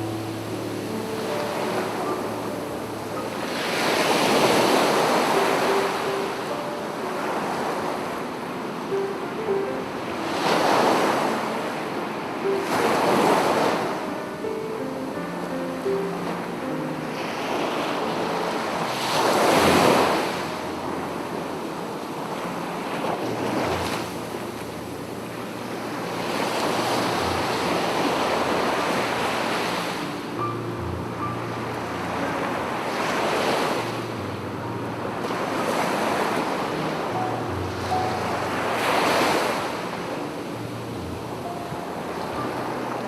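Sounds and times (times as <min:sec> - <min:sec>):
sea waves breaking on beach: 0:00.0 - 0:43.0.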